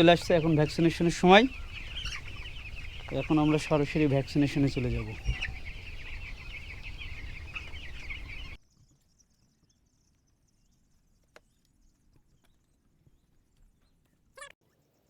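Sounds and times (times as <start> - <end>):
chicks peeping: 0.0 - 8.6.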